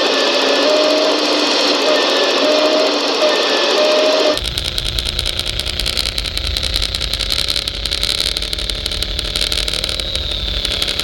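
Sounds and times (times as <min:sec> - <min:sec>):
model truck motor whining: 0:04.4 - 0:11.0.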